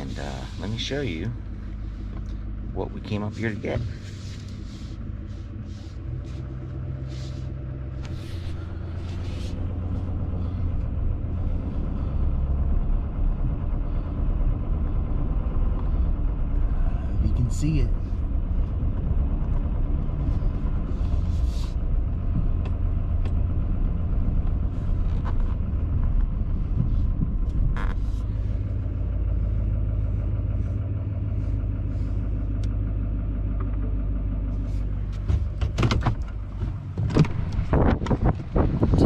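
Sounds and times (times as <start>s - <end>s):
wind buffeting microphone: 36.8s - 39.0s.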